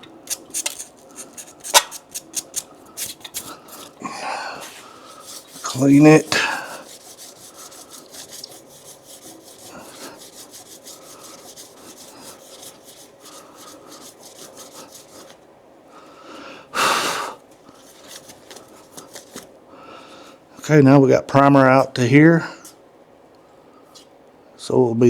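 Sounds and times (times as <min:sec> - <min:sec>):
sandpaper rubbing on metal: 0:00.3 - 0:03.2, 0:04.6 - 0:15.4.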